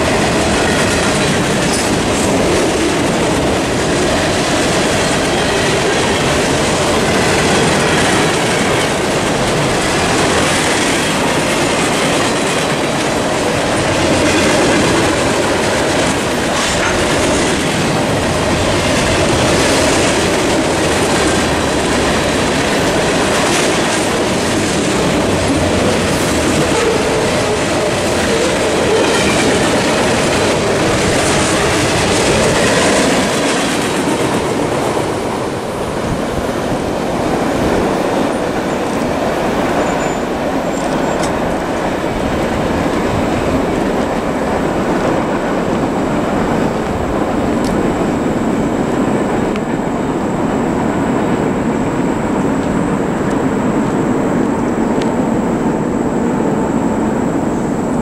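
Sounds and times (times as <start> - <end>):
wheels clicking over rail joints: 0.0 - 49.8
train rumble: 0.0 - 58.0
train wheel squeal: 25.9 - 34.3, 39.6 - 41.5.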